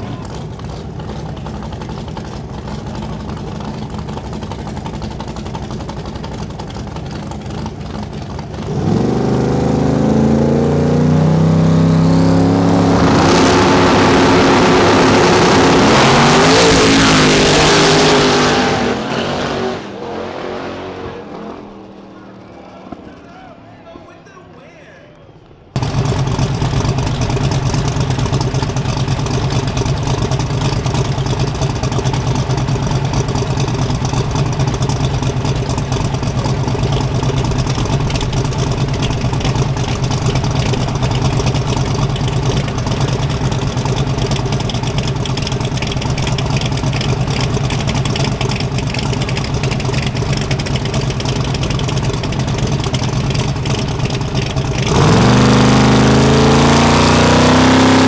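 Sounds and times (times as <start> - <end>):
drag car engine idling loudly: 0.0 - 9.1, 25.8 - 57.6.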